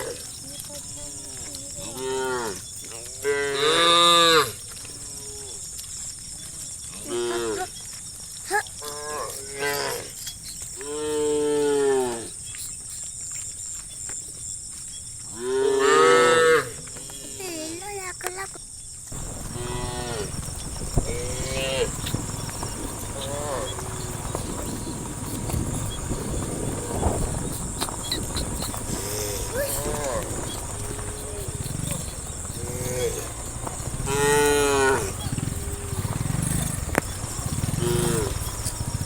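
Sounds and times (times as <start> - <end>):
cows mooing: 3.2 - 5.4, 15.4 - 16.8, 19.1 - 39.0.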